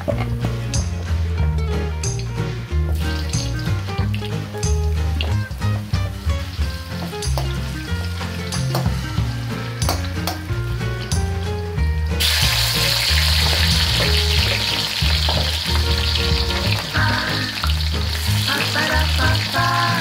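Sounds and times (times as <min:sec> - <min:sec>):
loud steady sizzle: 0:00.4 - 0:20.0
vegetables frying in oil: 0:02.9 - 0:11.1, 0:12.2 - 0:20.0.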